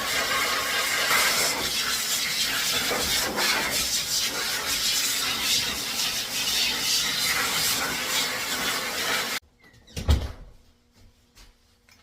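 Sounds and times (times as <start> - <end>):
blow dryer hissing air: 0.0 - 9.4.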